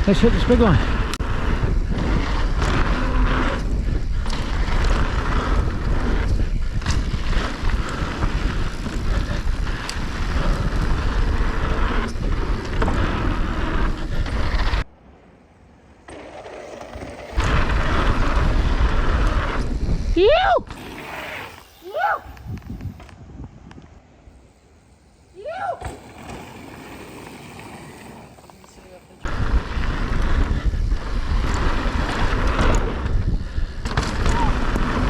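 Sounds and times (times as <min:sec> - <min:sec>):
bike tyres rolling over dirt: 0:00.0 - 0:14.9, 0:16.0 - 0:35.0
wind rushing over microphone: 0:00.0 - 0:14.9, 0:17.2 - 0:24.4, 0:29.2 - 0:35.0.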